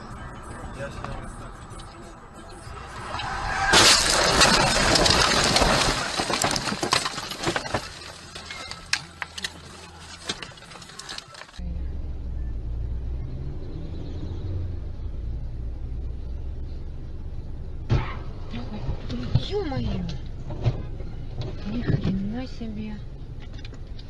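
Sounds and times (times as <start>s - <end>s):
car crash: 2.4s - 11.6s, 17.8s - 18.7s
falling debris clinking and rattling: 3.2s - 11.6s
car driving heard inside cabin: 11.6s - 24.0s.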